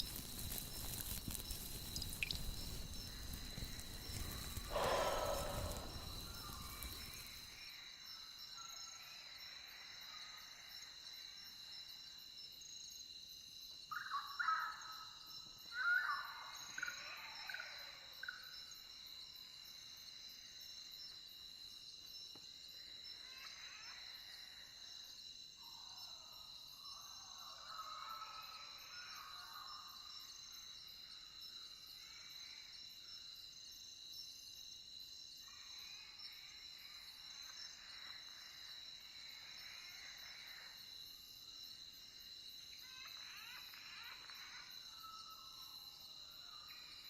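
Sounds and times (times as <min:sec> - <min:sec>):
high-pitched insect chorus: 0:00.0 - 0:47.0
animal calls: 0:04.1 - 0:07.3.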